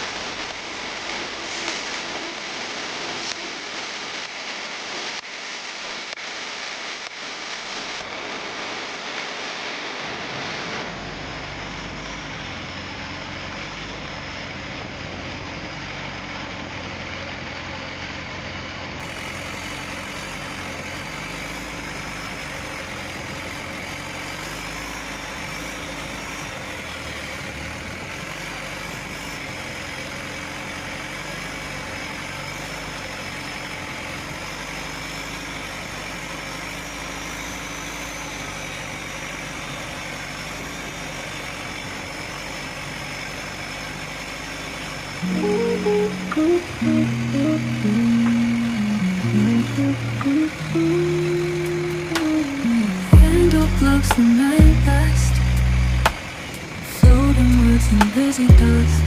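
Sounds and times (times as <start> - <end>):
boat engine humming: 11.4 - 59.0
faint high whine: 45.2 - 59.0.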